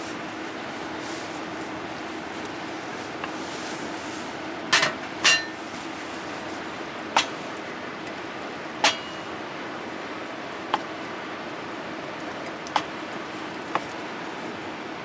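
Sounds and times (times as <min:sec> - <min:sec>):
cookware clinking and knocking: 0:04.8 - 0:05.6.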